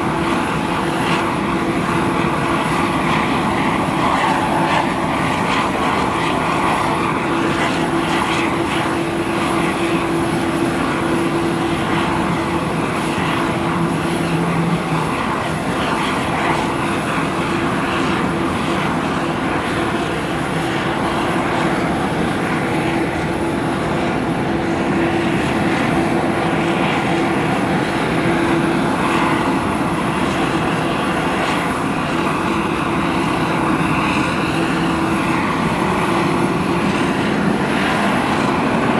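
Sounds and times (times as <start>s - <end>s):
aircraft engine drone: 0.0s - 38.9s.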